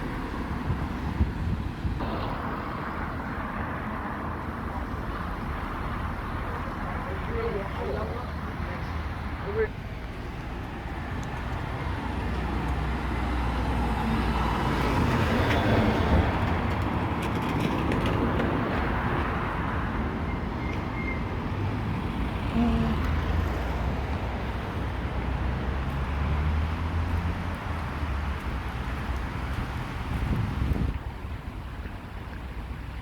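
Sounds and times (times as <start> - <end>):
engine rumble: 0.0 - 33.0
tyres on wet road: 0.0 - 33.0
vehicle passing: 21.5 - 30.9.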